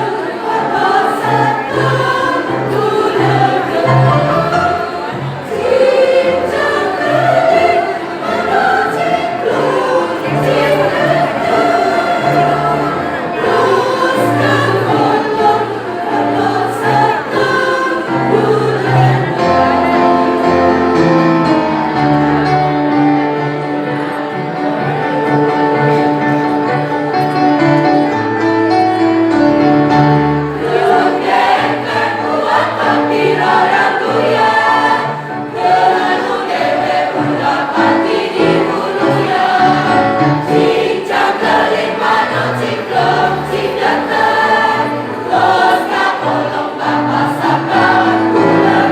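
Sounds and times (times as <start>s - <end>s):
choir singing in harmony: 0.0s - 48.9s.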